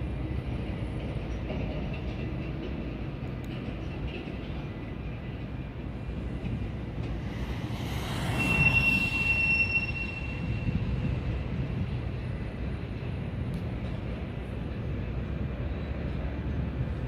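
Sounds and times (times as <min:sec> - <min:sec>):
freight train rumble: 0:00.0 - 0:17.0
high-pitched wheel squeal: 0:07.8 - 0:11.3.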